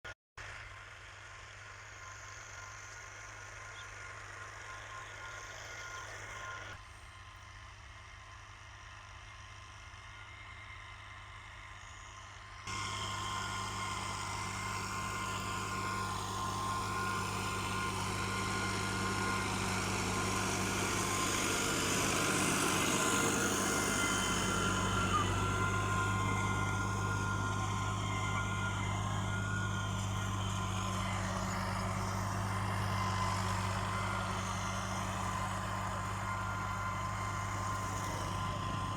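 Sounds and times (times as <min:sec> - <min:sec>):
tractor diesel engine running: 0:12.7 - 0:38.9.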